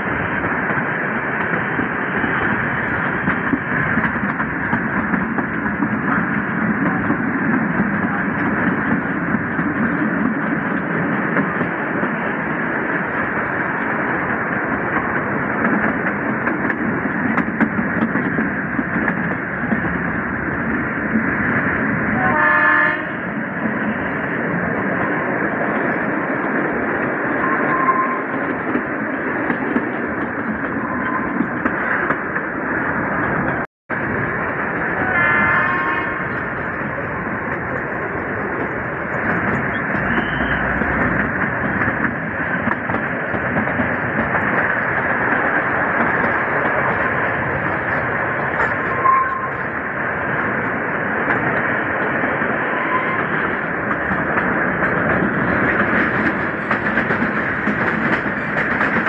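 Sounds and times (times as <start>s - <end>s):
train coaches running: 0.0s - 59.0s
train horn blast: 22.2s - 23.3s, 35.0s - 36.4s, 40.0s - 40.9s, 52.7s - 53.3s.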